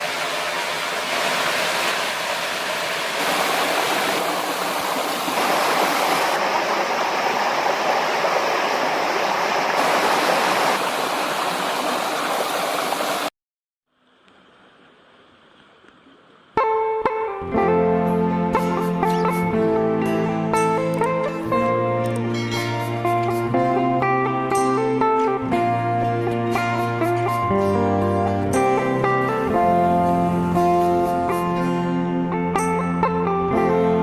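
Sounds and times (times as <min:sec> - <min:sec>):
rushing river water: 0:00.0 - 0:13.3
guitar music: 0:16.6 - 0:34.0.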